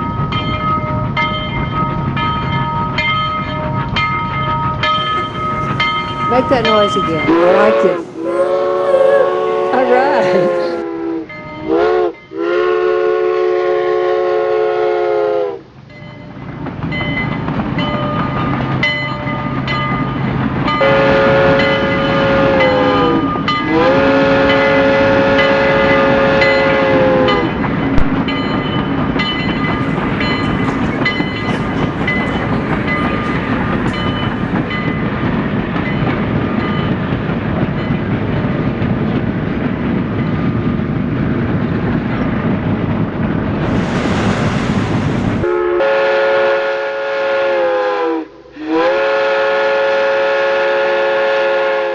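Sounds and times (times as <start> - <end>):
miniature train running on track: 0.0 - 51.9
miniature train horn blast: 6.8 - 15.6, 20.8 - 27.6, 45.4 - 51.9.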